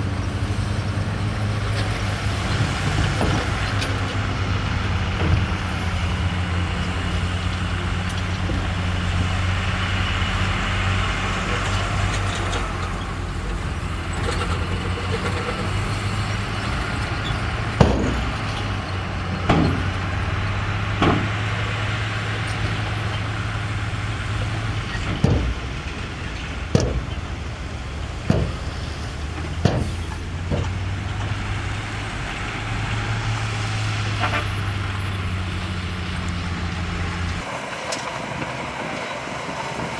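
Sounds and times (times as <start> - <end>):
heavy diesel engine running: 0.0 - 39.9
sharp knocks: 1.4 - 33.4.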